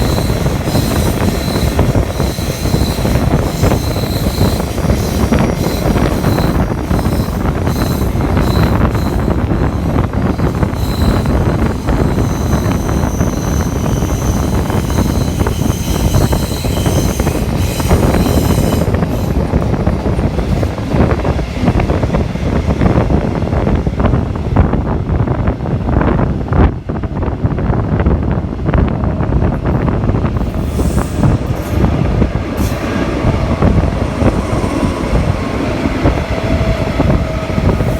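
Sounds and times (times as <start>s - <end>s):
train wheels rumbling on rails: 0.0s - 37.9s
thin high whines: 30.4s - 37.9s.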